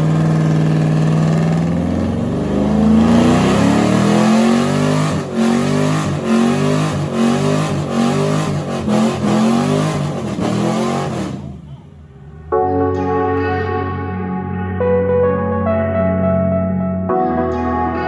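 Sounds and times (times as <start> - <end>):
diesel truck engine revving: 0.0 - 12.6.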